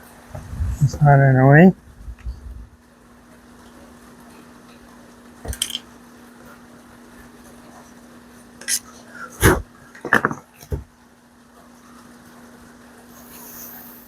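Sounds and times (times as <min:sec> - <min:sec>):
steady low hum: 0:00.0 - 0:14.0
tools knocking and clicking: 0:05.5 - 0:05.8.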